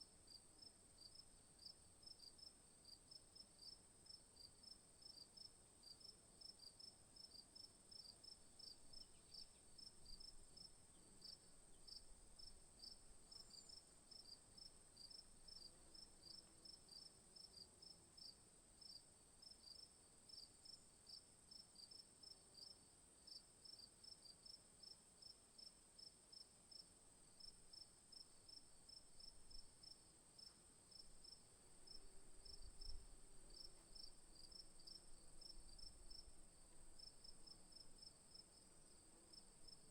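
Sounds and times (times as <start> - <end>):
crickets chirping: 3.6 - 17.6, 26.3 - 39.9.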